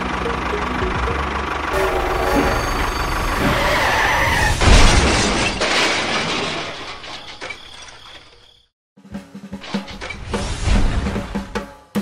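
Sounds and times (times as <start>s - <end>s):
loud crash: 1.8s - 7.5s.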